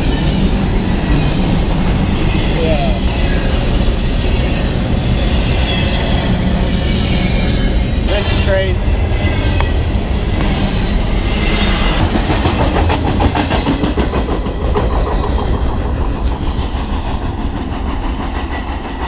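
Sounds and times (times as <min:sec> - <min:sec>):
train crossing a steel bridge: 0:00.0 - 0:19.0
wheels clattering over rails: 0:00.0 - 0:19.0.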